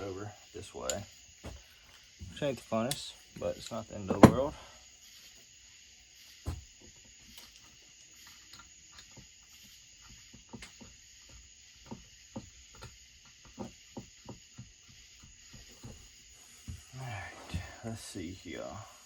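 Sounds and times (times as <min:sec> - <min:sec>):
high-pitched background hiss: 0:00.0 - 0:19.0.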